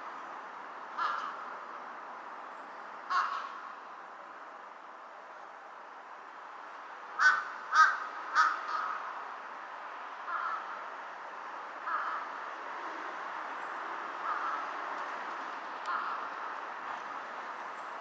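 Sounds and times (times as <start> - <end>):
crows cawing: 1.0 - 1.4, 3.1 - 3.6, 7.2 - 9.1, 10.3 - 10.8, 11.8 - 12.3, 14.2 - 14.7.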